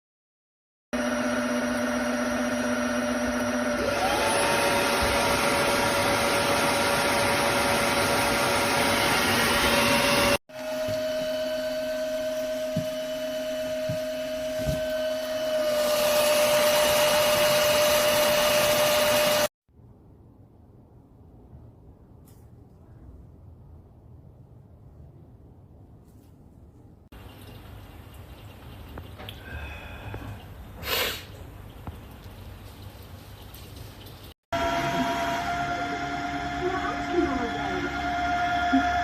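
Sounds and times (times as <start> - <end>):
floor washer motor whining: 1.0 - 19.5, 34.5 - 39.0.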